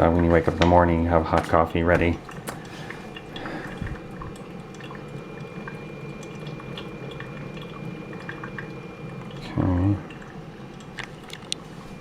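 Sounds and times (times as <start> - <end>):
coffee dripping and trickling: 0.0 - 12.0
coffee maker hiss: 2.1 - 12.0
faint high whine: 3.4 - 12.0.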